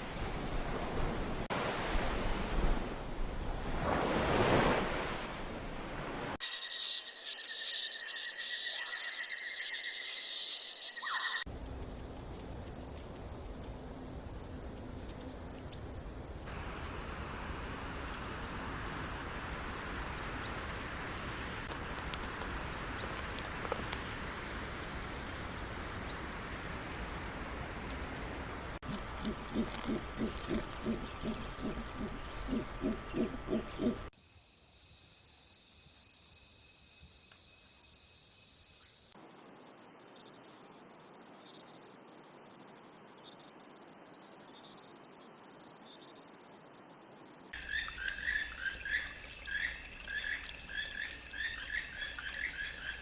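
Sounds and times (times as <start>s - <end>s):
background hiss: 11.5s - 42.9s
low pulsing animal calls: 28.8s - 34.1s.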